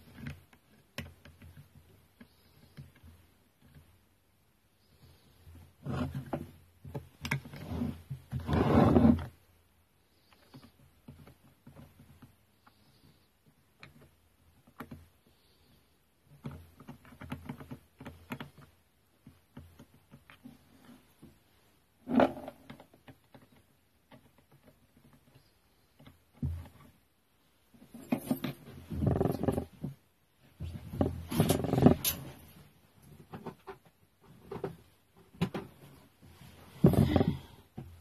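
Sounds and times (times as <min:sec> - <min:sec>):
hand tools and plastic parts rattling: 0:27.6 - 0:38.0.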